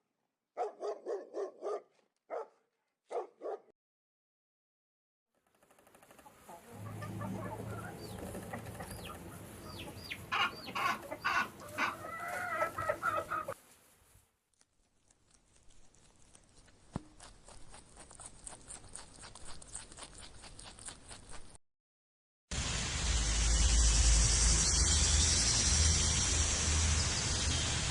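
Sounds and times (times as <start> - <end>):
chickens clucking: 6.1 - 13.6.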